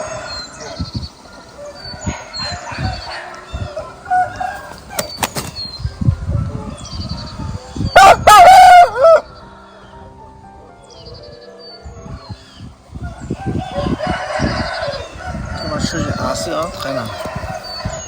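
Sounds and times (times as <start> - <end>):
rooster crowing: 0.0 - 5.0, 6.6 - 10.1, 13.0 - 18.0.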